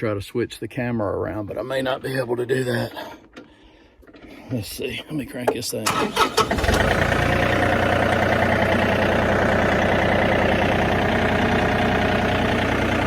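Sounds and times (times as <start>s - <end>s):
tractor engine idling: 4.1s - 13.0s.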